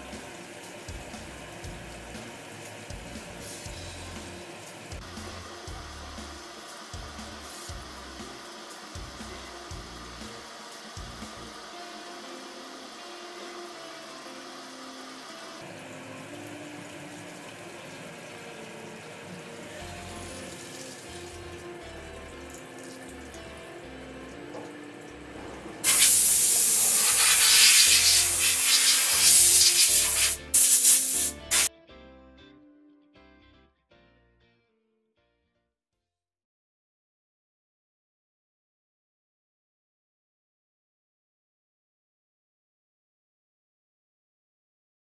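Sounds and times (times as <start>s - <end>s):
background music: 0.0s - 34.8s
coolant spraying: 24.6s - 31.7s.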